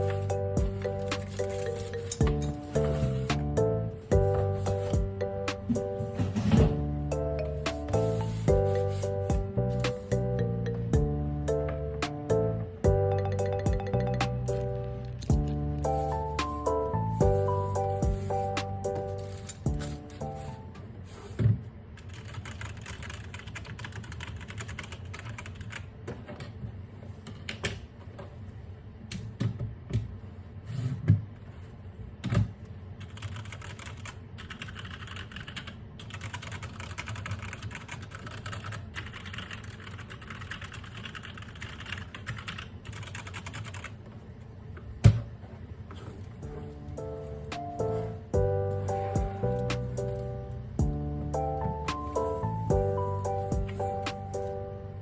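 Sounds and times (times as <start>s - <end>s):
mechanical keyboard typing: 22.0s - 25.9s, 33.0s - 44.0s.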